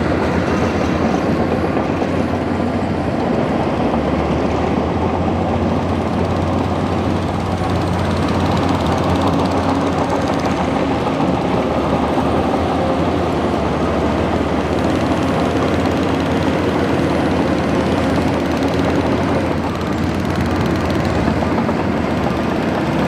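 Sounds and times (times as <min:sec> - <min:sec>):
bulldozer diesel engine running: 0:00.0 - 0:23.0.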